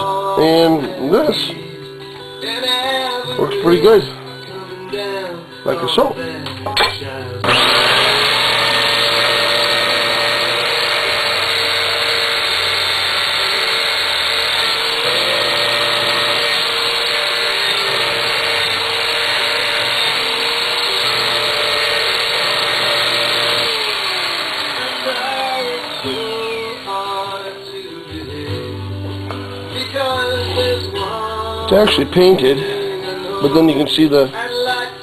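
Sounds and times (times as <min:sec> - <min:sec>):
rotary power tool grinding: 0:07.4 - 0:28.0.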